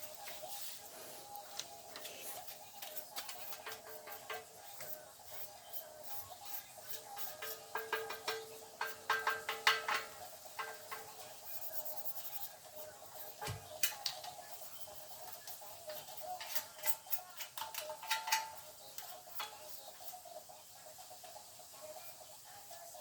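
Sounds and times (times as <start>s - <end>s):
metal tools clinking: 16.4s - 19.1s.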